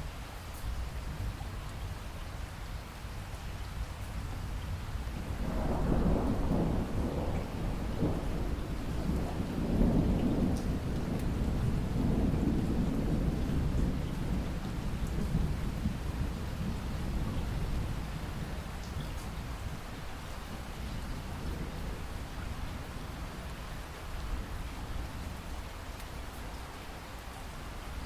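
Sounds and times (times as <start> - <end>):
rain falling: 0.0 - 28.0
thunder rolling: 5.4 - 17.9.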